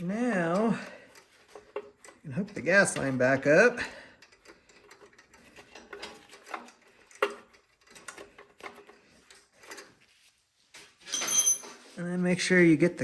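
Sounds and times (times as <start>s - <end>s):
small clicks of fuel line handling: 4.2s - 10.0s.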